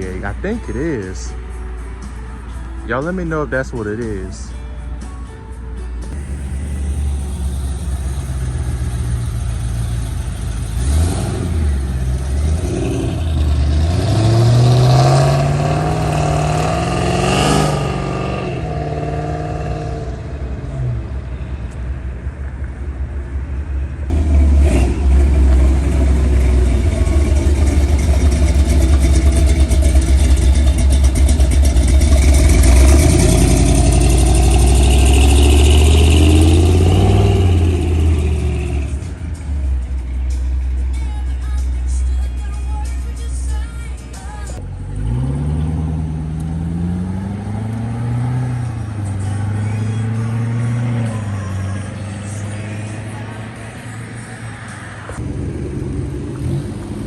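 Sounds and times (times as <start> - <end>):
cars accelerating hard: 6.1 - 21.2, 24.1 - 39.8, 44.7 - 57.0
deep exhaust rumble: 6.1 - 21.4, 22.2 - 53.4, 55.1 - 57.0.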